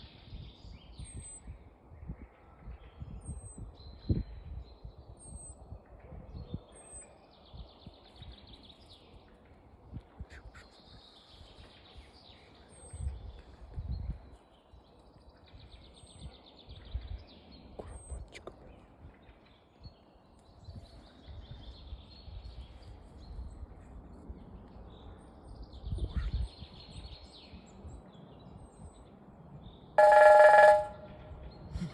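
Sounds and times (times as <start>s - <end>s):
small birds singing: 6.5s - 9.3s, 10.2s - 31.9s.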